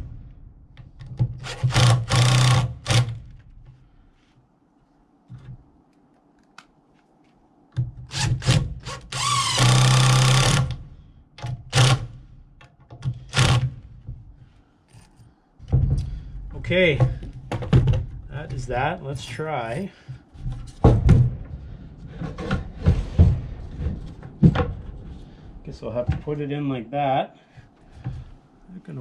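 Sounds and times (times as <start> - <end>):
power drill driving screws: 1.4 - 3.2, 8.1 - 10.8, 11.7 - 12.1, 13.3 - 13.7.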